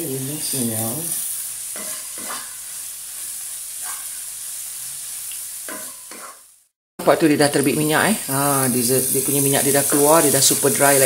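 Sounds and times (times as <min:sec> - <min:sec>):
food sizzling in oil: 0:00.0 - 0:11.0
wooden spatula scraping wok: 0:01.6 - 0:04.3, 0:05.7 - 0:06.5.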